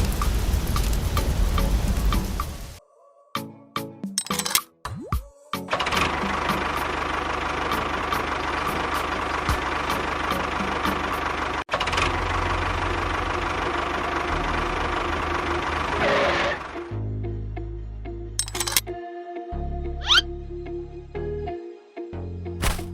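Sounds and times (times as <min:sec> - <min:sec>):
engine running: 0:05.7 - 0:17.0, 0:22.6 - 0:22.9.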